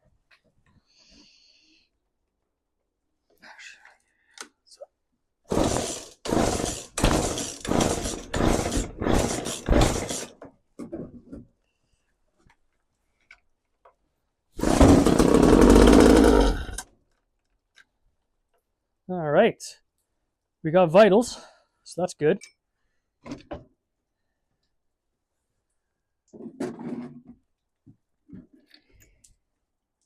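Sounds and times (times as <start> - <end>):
chainsaw recoil starter pulls: 5.5 - 10.3, 14.6 - 16.8
chainsaw engine firing briefly: 14.6 - 16.8.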